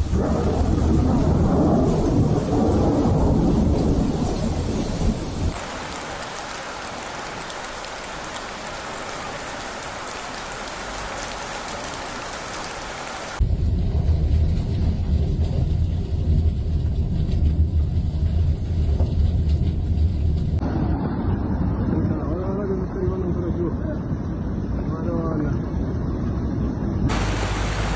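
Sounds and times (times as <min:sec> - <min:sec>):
deep continuous rumble: 0:00.0 - 0:05.6, 0:13.4 - 0:27.9
heavy rain hissing: 0:00.0 - 0:13.4, 0:27.1 - 0:27.9.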